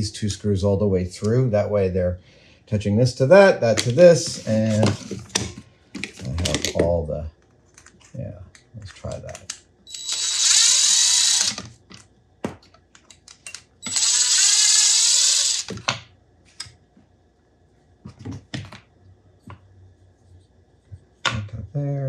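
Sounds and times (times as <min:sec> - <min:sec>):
power drill driving screws: 0:09.9 - 0:11.7, 0:13.8 - 0:15.8.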